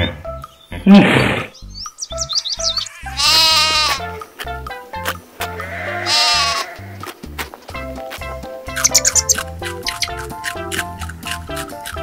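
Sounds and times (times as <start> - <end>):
background music with steady beat: 0.0 - 12.0
sheep bleating: 2.6 - 4.2, 5.5 - 7.0.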